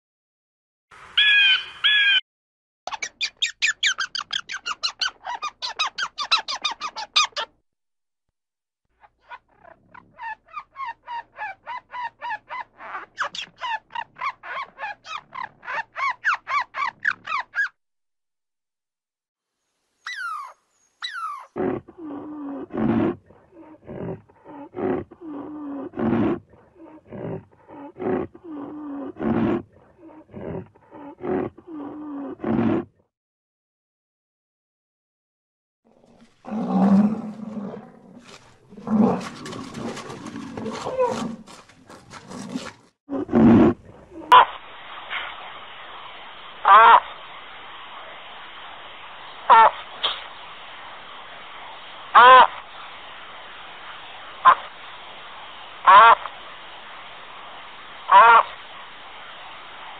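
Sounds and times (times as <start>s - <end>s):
fast high chattering calls: 2.9s - 7.5s
rough low animal calls: 36.0s - 44.4s.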